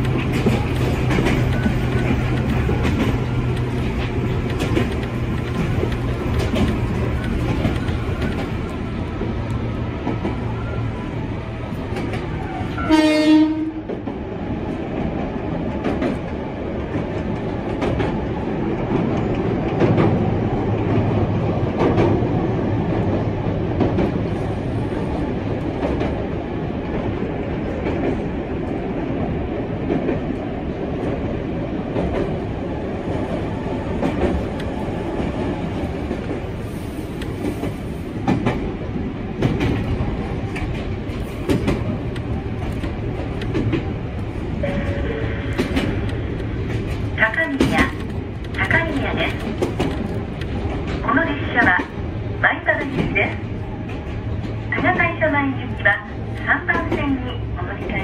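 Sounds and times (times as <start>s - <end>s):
wheels clacking over rail joints: 0.0s - 10.8s, 37.3s - 52.0s
train running noise: 0.0s - 58.0s
train horn blast: 12.5s - 13.9s, 44.6s - 45.7s.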